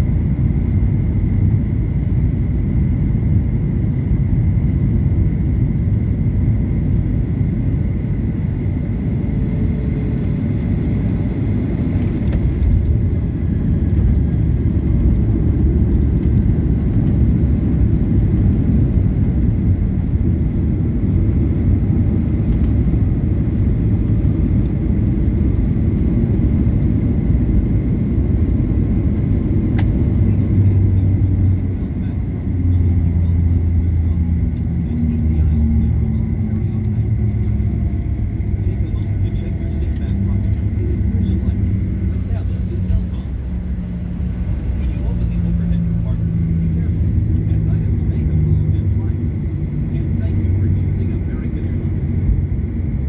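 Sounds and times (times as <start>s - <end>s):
airliner low rumble: 0.0s - 53.0s.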